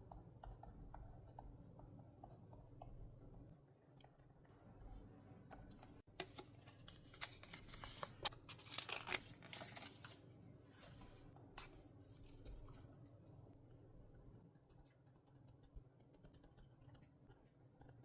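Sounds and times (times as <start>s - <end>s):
paper handling: 6.2s - 11.8s.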